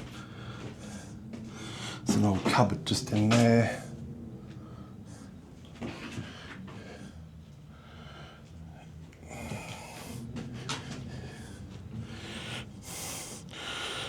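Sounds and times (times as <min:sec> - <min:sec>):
person breathing: 0:09.2 - 0:14.0.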